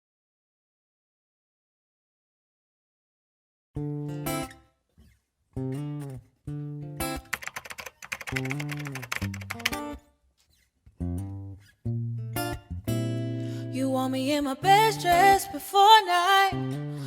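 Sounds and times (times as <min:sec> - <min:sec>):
acoustic guitar strumming: 0:11.2 - 0:17.0.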